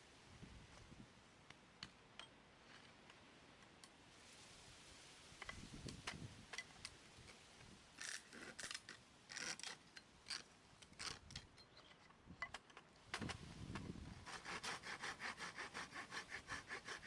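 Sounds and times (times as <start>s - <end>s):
blade scraping wood: 14.2s - 17.0s.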